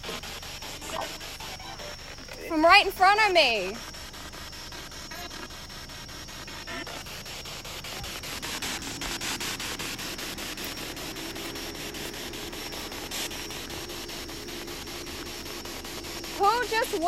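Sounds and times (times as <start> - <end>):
radio static hiss: 0.0 - 17.0
rapid clicks: 0.0 - 17.0
thin high tone: 6.6 - 17.0.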